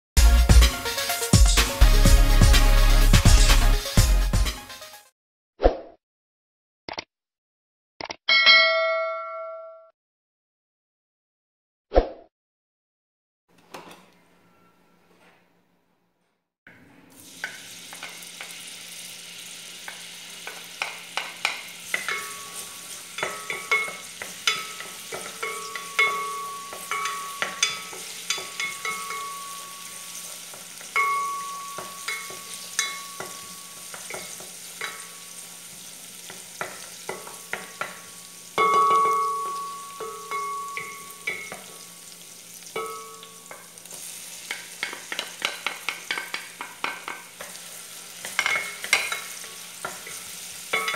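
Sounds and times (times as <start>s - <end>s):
clear ringing tone: 8.3s - 9.9s
garlic and onion sizzling in oil: 17.1s - 50.9s
wooden spoon knocking against pot: 44.5s - 47.2s.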